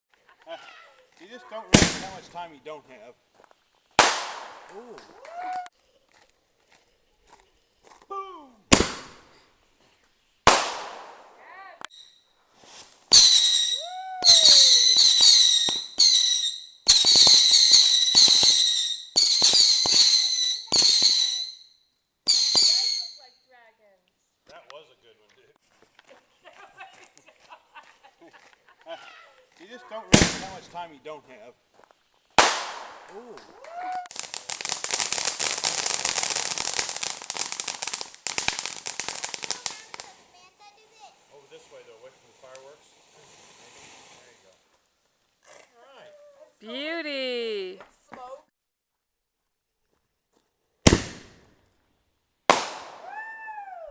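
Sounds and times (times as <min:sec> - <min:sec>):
fireworks bursting: 0:00.6 - 0:02.8, 0:03.9 - 0:05.7, 0:08.7 - 0:09.5, 0:10.4 - 0:21.6, 0:22.3 - 0:23.3, 0:29.6 - 0:31.1, 0:32.3 - 0:44.7, 0:50.8 - 0:51.7, 0:52.5 - 0:53.8
sharp cracks: 0:01.7 - 0:02.5, 0:04.0 - 0:05.7, 0:08.7 - 0:09.4, 0:10.4 - 0:11.5, 0:30.1 - 0:30.8, 0:32.4 - 0:40.2, 0:50.9 - 0:51.8, 0:52.5 - 0:53.3
high shrill firework whistle: 0:13.1 - 0:23.3, 0:52.6 - 0:53.9.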